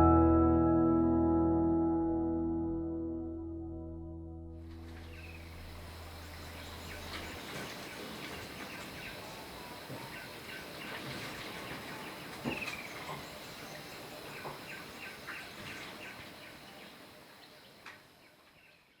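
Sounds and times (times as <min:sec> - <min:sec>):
high insect drone: 0:04.8 - 0:10.8
long falling bird call: 0:04.9 - 0:17.1.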